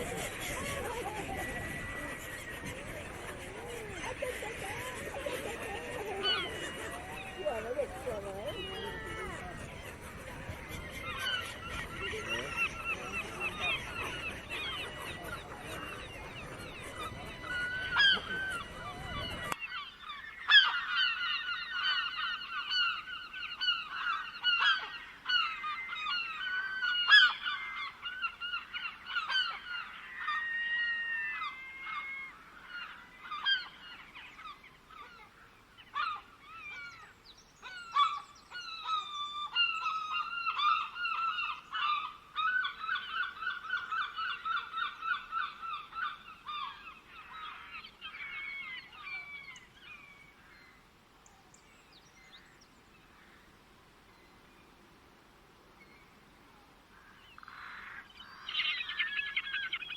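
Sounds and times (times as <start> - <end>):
bird whistles gliding: 0.0 - 19.6
birds honking and chirping: 0.0 - 50.8, 57.0 - 59.9.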